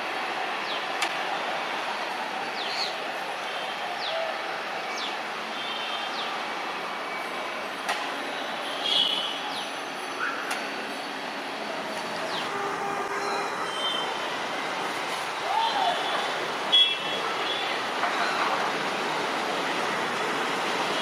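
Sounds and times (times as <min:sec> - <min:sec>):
train rumbling on rails: 0:09.4 - 0:21.0.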